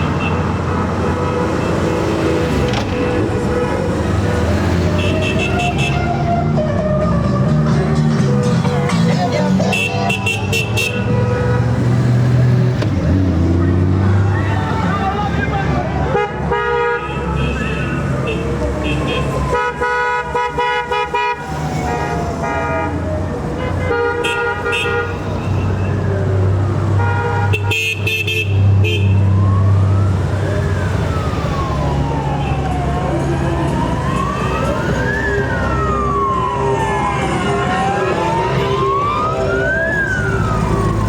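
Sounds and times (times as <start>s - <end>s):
motorcycle engines rumbling: 0.0s - 20.4s, 21.4s - 41.0s
siren wailing: 0.6s - 9.6s, 29.1s - 41.0s
motorcycle horns: 4.8s - 6.5s, 9.6s - 11.8s, 16.0s - 23.0s, 23.6s - 25.8s, 27.0s - 29.2s.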